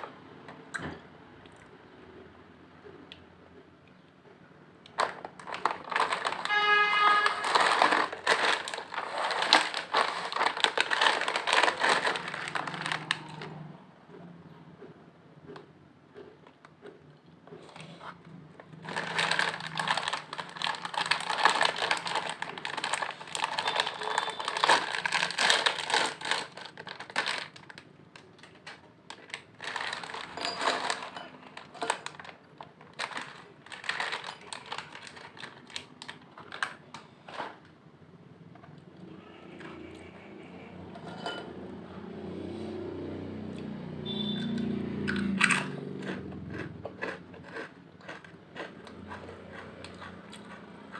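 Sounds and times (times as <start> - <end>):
chip bag crinkling: 4.9 - 13.6, 18.7 - 37.6, 46.5 - 49.3
chips crunching: 4.9 - 13.6, 18.6 - 37.5, 45.1 - 50.9.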